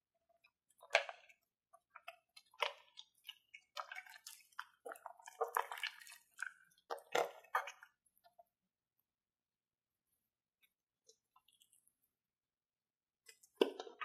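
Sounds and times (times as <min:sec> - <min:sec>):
slime squelching by hand: 0:00.4 - 0:08.3.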